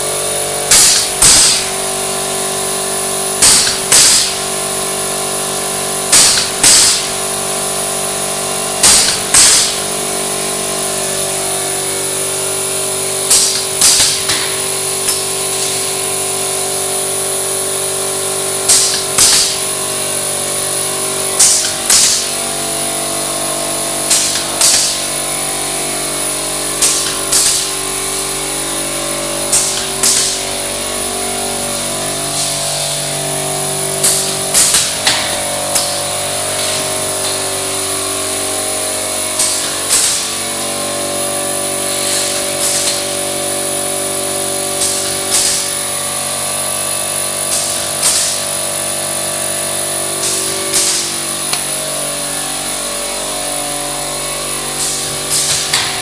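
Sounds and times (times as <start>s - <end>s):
roll-forming machine running: 0.0s - 56.0s
sharp metallic clacks: 0.7s - 1.7s, 3.4s - 4.4s, 8.8s - 9.9s, 18.7s - 19.6s, 21.4s - 22.4s, 24.1s - 25.1s, 26.8s - 27.7s, 29.5s - 30.4s, 34.0s - 36.0s, 39.4s - 40.4s, 47.5s - 48.4s.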